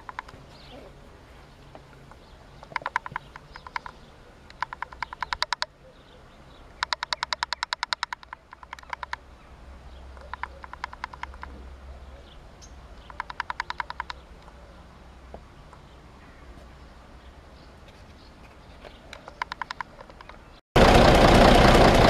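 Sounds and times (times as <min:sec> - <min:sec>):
bird rattling trills: 0:02.1 - 0:05.7, 0:06.7 - 0:09.4, 0:10.0 - 0:11.6, 0:12.6 - 0:14.6.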